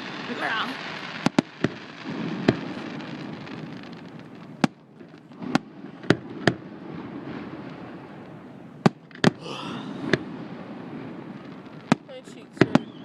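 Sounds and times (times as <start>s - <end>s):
fireworks bangs: 0.0s - 13.0s
low rumble of fireworks display: 0.0s - 13.0s.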